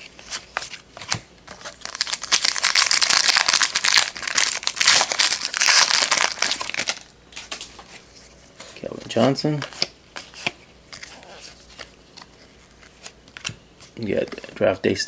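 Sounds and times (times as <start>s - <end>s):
card pack wrapper crinkling: 0.0s - 7.8s.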